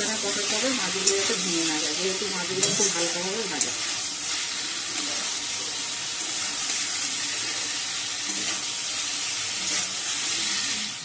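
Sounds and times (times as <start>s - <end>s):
spatula stirring: 0.0s - 5.4s
fish and masala sizzling in a wok: 0.0s - 11.0s.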